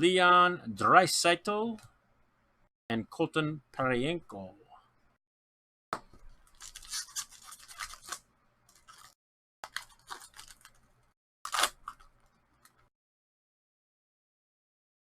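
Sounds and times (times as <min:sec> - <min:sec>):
foil card pack crinkling: 0:06.4 - 0:12.9.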